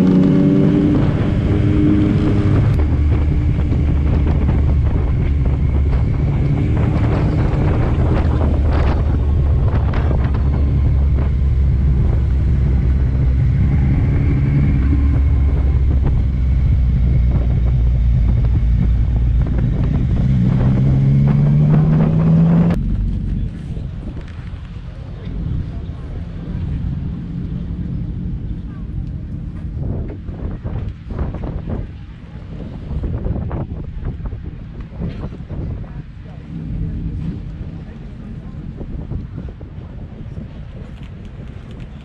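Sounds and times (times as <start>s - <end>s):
motorcycle engine running: 0.0s - 31.9s
wind buffeting microphone: 0.0s - 42.0s.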